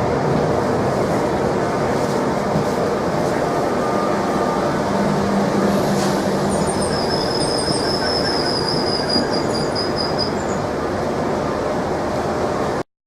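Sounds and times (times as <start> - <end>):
train rail noise: 0.0 - 12.8
wheels squealing on track: 6.5 - 10.6.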